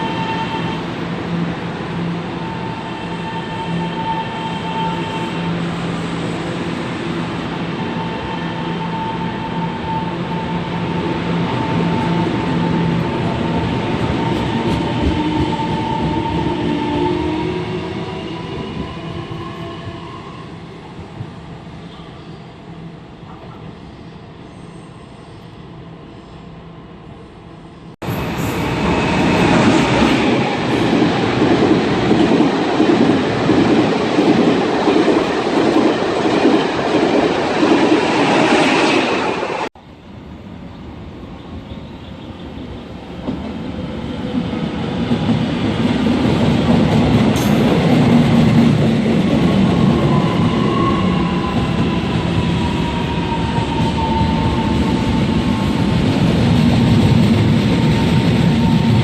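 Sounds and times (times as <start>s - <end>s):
train wheels rumbling on rails: 0.0s - 20.3s, 42.0s - 59.0s.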